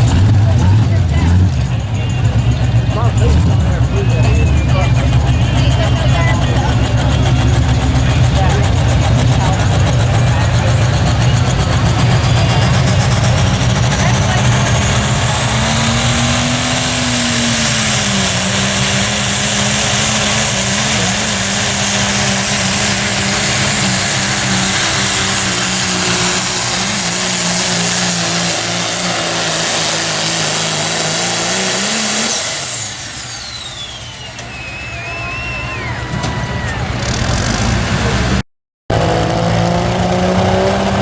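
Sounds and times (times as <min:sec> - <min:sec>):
diesel truck engine under load: 0:00.0 - 0:41.0
high whistle: 0:19.8 - 0:37.7.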